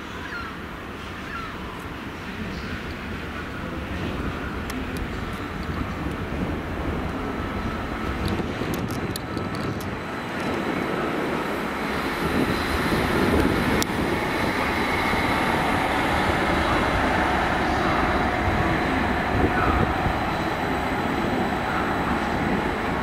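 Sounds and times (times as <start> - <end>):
train wheel running noise: 2.3 - 23.0
high steady whine: 9.2 - 23.0.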